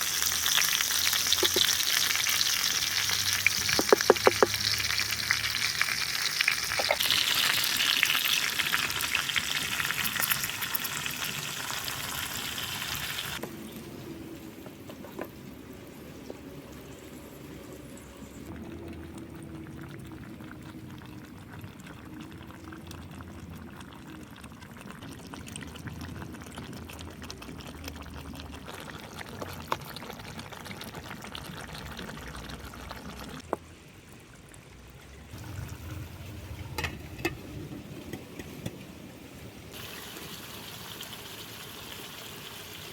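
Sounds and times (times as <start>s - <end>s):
food sizzling in hot oil: 0.0s - 13.4s, 39.7s - 42.9s
quiet cooking sound: 0.0s - 42.9s.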